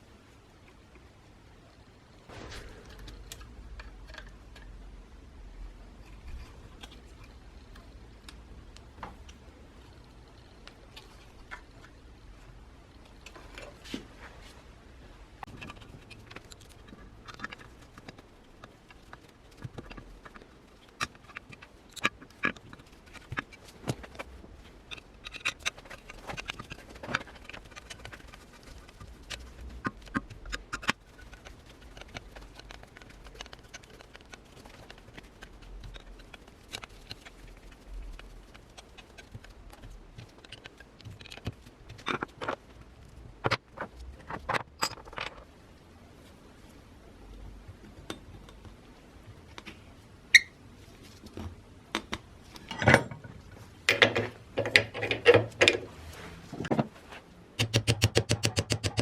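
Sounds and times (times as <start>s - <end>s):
tools and parts clicking and knocking: 15.4s - 28.2s, 38.8s - 42.7s, 43.4s - 45.5s, 51.9s - 56.0s, 57.6s - 59.0s.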